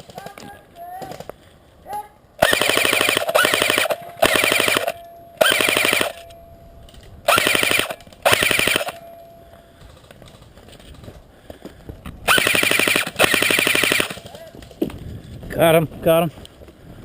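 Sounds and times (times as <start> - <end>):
airsoft gun firing full auto: 2.4 - 6.3, 7.3 - 9.0, 12.3 - 14.4.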